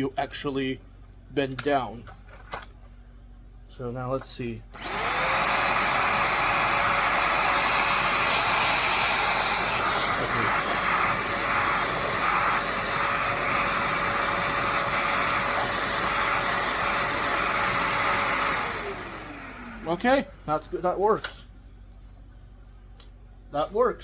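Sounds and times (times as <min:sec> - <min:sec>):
vacuum cleaner running: 0:04.7 - 0:21.0.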